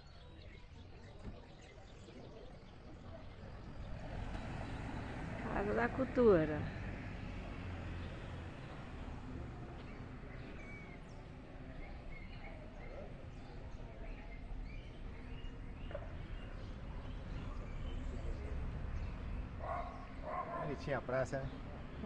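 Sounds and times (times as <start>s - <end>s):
faint birds chirping: 0.0s - 22.0s.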